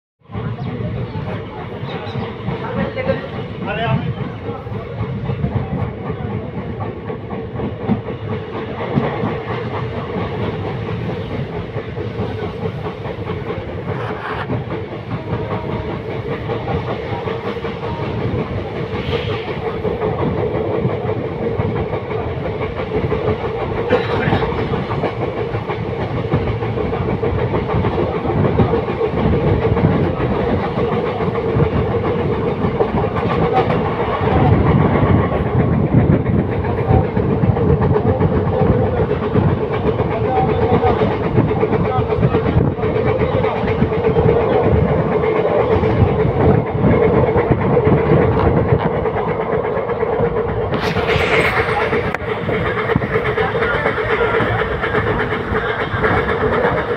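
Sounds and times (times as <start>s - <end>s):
train wheels on rails: 0.2s - 56.9s.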